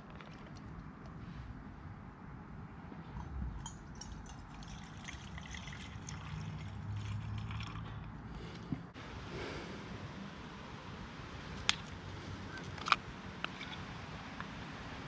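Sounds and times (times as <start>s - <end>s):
liquid trickling from a bottle: 3.2s - 8.1s.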